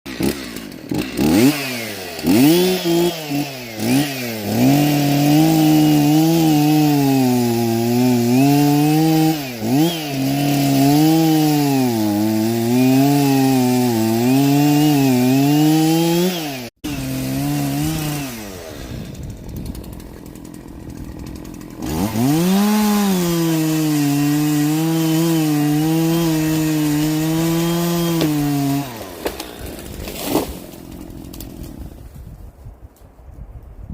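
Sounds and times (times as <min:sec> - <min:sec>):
chainsaw cutting into tree: 0:00.1 - 0:32.4
sharp crack: 0:29.0 - 0:31.8.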